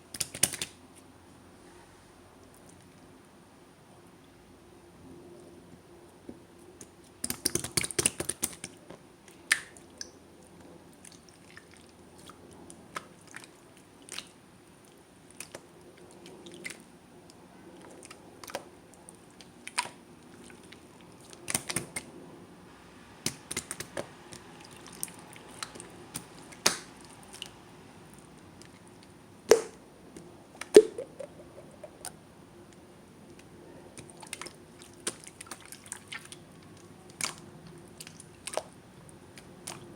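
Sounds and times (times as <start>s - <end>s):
wet sticky clicks and air pops: 0.1s - 0.8s, 6.8s - 8.8s, 21.3s - 22.1s, 23.2s - 24.4s, 25.0s - 27.5s, 29.5s - 29.8s.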